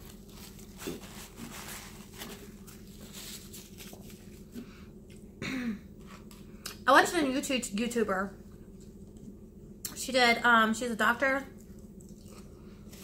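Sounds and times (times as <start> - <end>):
steady low hum: 0.0 - 13.0
person chewing food: 11.6 - 13.0.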